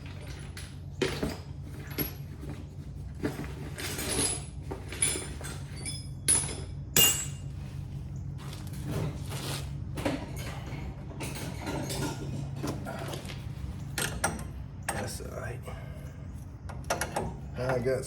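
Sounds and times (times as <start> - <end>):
steady low hum: 0.0 - 18.0
sharp metallic knocks with ringing: 6.3 - 7.4.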